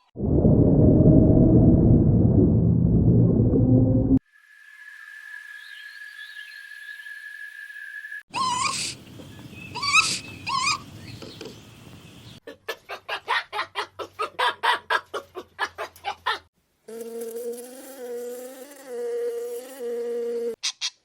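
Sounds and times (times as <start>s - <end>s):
animal calls: 8.3s - 11.0s.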